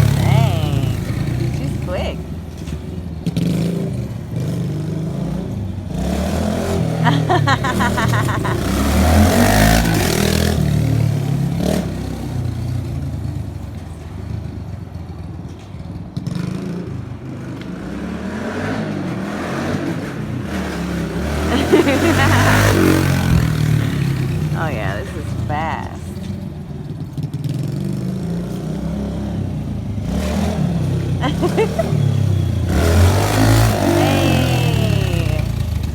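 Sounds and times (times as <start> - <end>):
motorcycle engine revving: 0.0 - 13.5, 26.2 - 35.9.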